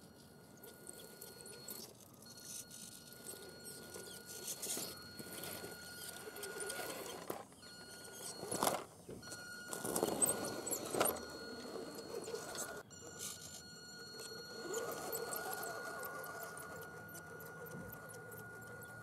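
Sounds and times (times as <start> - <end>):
toy truck electric motor whining: 0.0 - 19.0.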